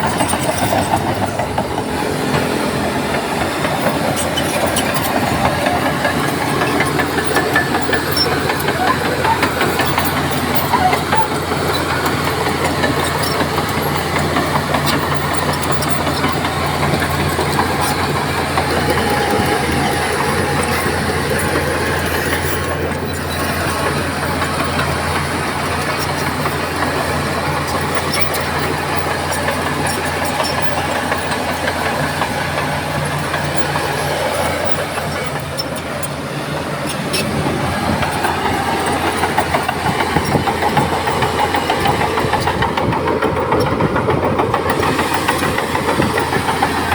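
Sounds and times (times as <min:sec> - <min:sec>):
heavy diesel engine droning: 0:00.0 - 0:46.9.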